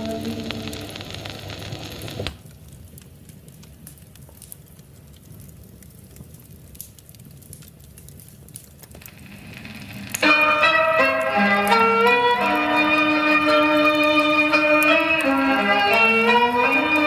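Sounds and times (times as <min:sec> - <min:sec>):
song music: 0:00.0 - 0:01.2, 0:10.1 - 0:17.0
wood fire crackling: 0:00.0 - 0:17.0.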